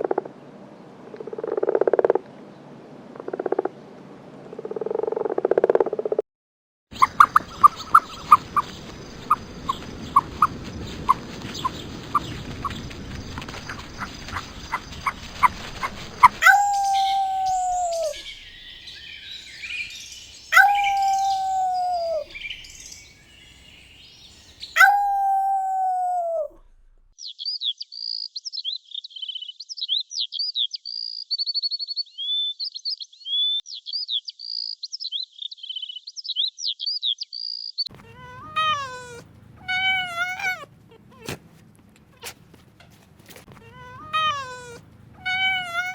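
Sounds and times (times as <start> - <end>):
rapid high bird chirping: 7.0 - 26.4
howl-like animal calls: 16.2 - 18.6, 20.4 - 23.0, 24.7 - 26.6
meow-like calls: 16.3 - 18.6, 20.5 - 22.4, 24.8 - 26.6, 38.0 - 41.4, 43.5 - 45.9.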